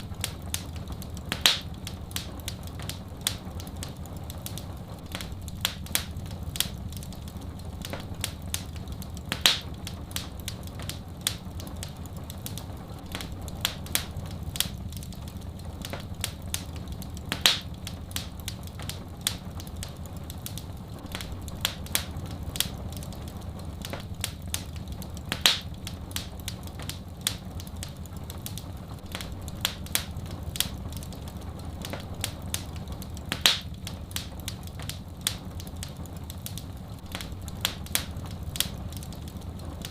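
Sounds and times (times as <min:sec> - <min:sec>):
wood fire crackling: 0:00.0 - 0:39.9
loud fire pop: 0:01.4 - 0:01.8, 0:09.4 - 0:09.8, 0:17.4 - 0:18.4, 0:25.4 - 0:25.8, 0:33.4 - 0:33.8.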